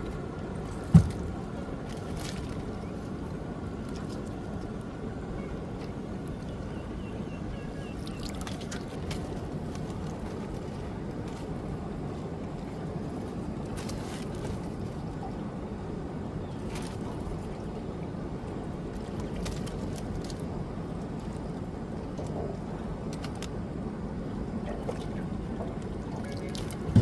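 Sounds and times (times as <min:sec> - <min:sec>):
water sloshing around a boat: 0:00.0 - 0:27.0
sharp knocks: 0:26.8 - 0:27.0.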